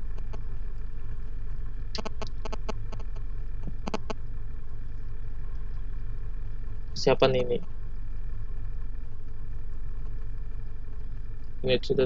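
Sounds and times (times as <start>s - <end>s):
motorcycle engine idling: 0.0s - 12.0s
sharp clicks and knocks: 2.0s - 4.2s.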